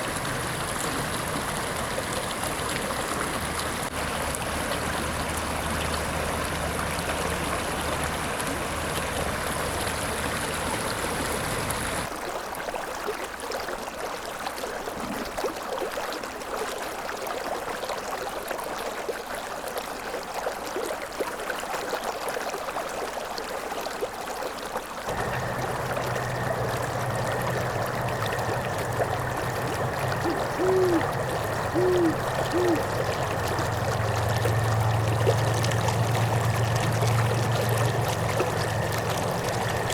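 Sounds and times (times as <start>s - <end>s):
river flowing over rocks: 25.1s - 39.9s
short hoots: 27.0s - 33.7s.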